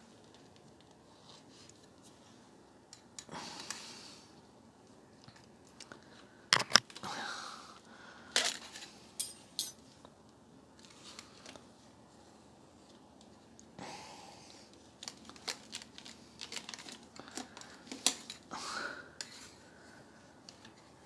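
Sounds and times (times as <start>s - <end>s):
plastic and metal clicks and knocks: 6.6s - 6.8s.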